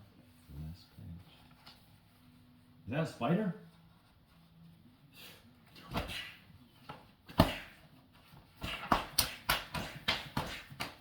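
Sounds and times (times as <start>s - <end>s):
sharp smack: 7.3s - 7.8s, 8.6s - 11.0s.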